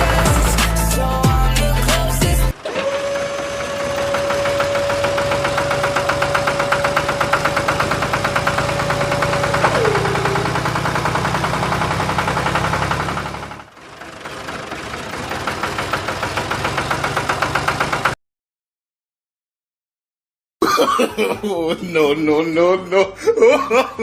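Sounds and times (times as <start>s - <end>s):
small engine knocking rattle: 2.8s - 18.2s.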